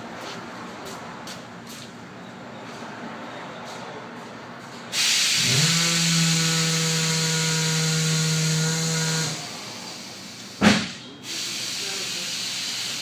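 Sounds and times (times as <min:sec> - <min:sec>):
air hissing: 0:04.9 - 0:13.0
pneumatic tool motor whining: 0:05.0 - 0:10.5.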